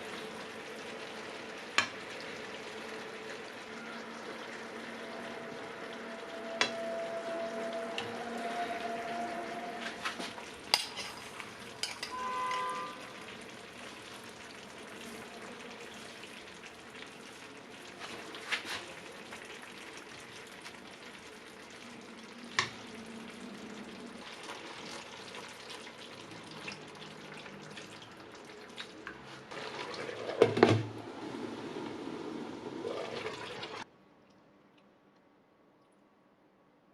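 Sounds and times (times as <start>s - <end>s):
food sizzling in a pan: 0.0s - 28.6s.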